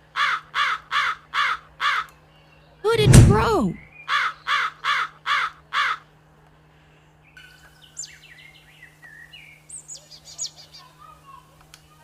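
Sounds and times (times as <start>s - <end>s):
crow cawing: 0.2s - 2.1s, 4.1s - 6.0s.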